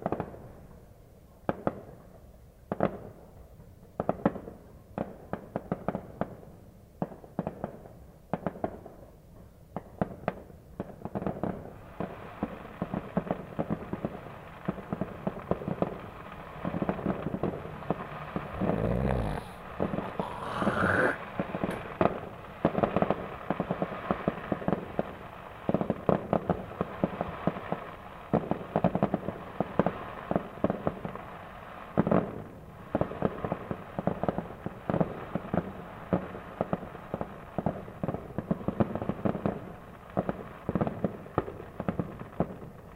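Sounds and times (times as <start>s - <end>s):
fireworks cracking and popping: 9.8s - 42.9s.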